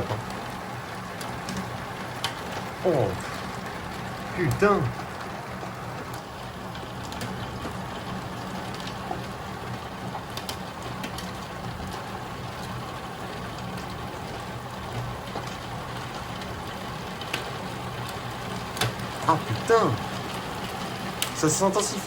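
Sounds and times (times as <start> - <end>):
hailstones ticking: 0.0 - 22.0
heavy rain on roof and window: 0.0 - 22.0
low steady hum: 2.7 - 5.6.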